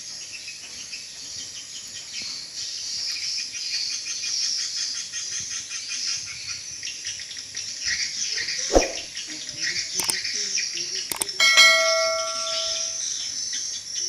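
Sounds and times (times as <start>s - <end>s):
swiftlets twittering: 11.1s - 13.0s.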